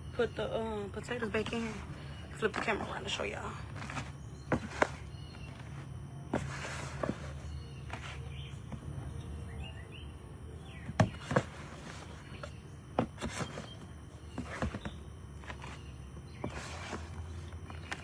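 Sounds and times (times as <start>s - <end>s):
steady low hum: 0.0s - 18.0s
handling knocks and rustles: 3.6s - 9.0s, 10.8s - 18.0s.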